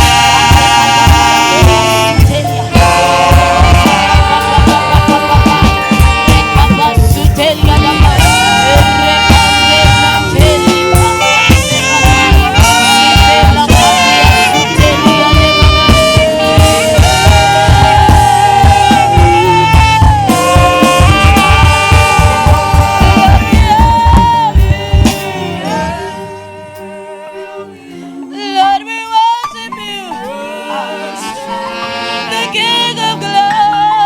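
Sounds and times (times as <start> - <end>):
drum beat: 0.0 - 26.0
bass: 0.0 - 26.9
saxophone melody: 0.0 - 34.0.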